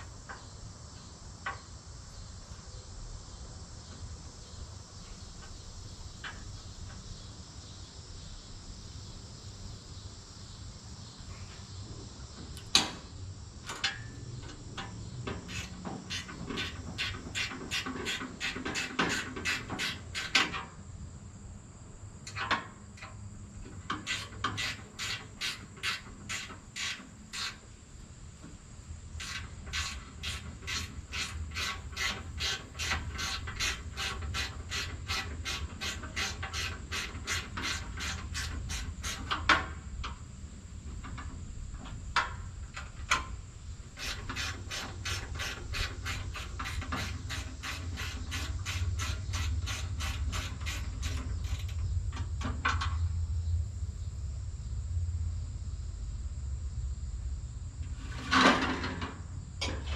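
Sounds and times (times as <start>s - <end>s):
low steady hum: 51.0s - 59.9s.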